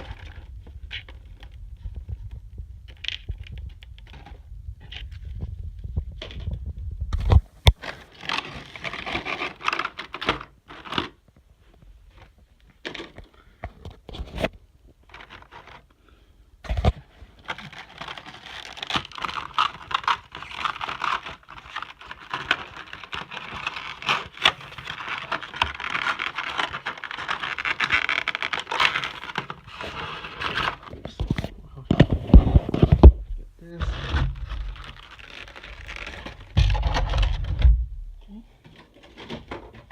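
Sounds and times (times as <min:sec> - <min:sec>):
packaging crinkling and rustling: 0:00.0 - 0:16.0, 0:16.7 - 0:39.9
sharp clicks and knocks: 0:36.0 - 0:39.9.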